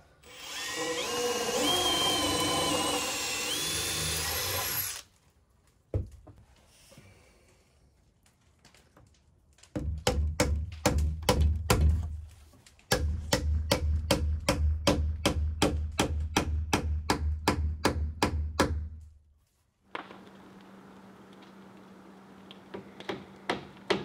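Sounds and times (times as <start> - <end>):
mallet striking wooden railing: 9.8 - 12.1, 12.9 - 18.9.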